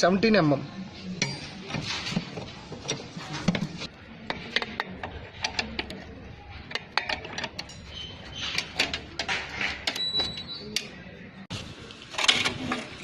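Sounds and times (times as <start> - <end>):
spanner clinking on metal: 6.6 - 10.2.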